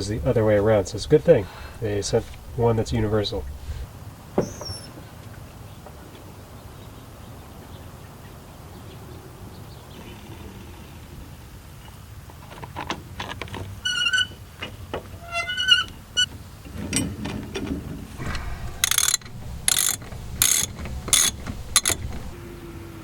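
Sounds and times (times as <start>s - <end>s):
short metal squeaks: 15.2s - 16.3s, 18.2s - 22.4s
socket ratchet wrench clicking: 18.7s - 22.3s.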